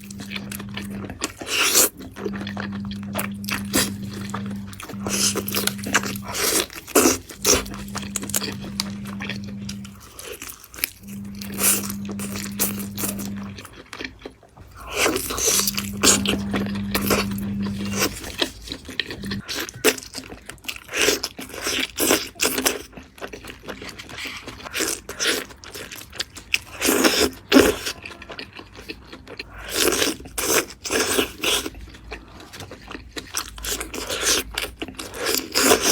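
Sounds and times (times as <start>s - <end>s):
low hum: 0.0s - 1.2s, 2.2s - 10.3s, 11.0s - 13.8s, 14.6s - 19.4s
crunching and chewing food: 0.0s - 35.9s.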